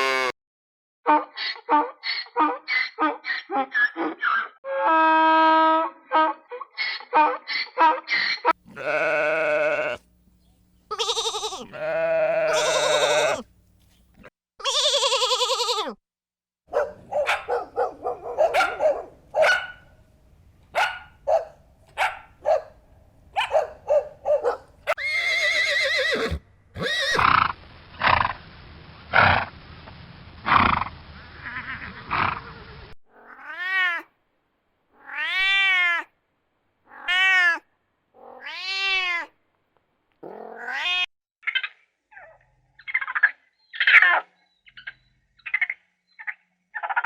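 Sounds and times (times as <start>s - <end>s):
animal calls: 10.9s - 13.4s.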